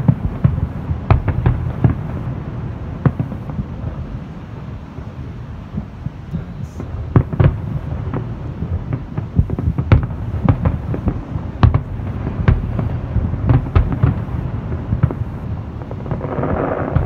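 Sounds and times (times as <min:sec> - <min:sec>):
fireworks booming and cracking: 0:00.0 - 0:17.0.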